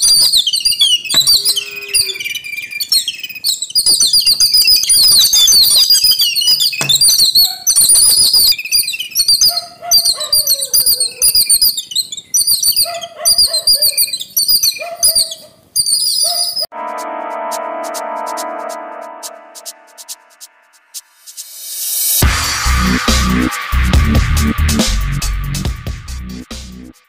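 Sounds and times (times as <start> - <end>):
birds calling shrill chirps: 0.0 - 16.7
electronic music: 16.7 - 27.0.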